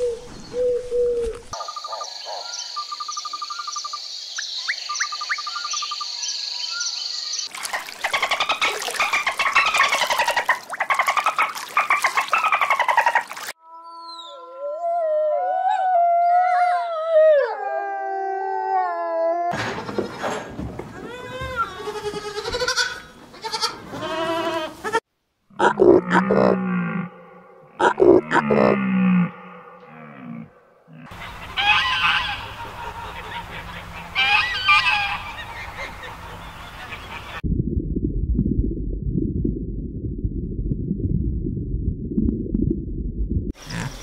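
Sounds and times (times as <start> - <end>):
geese honking: 31.1 - 37.4.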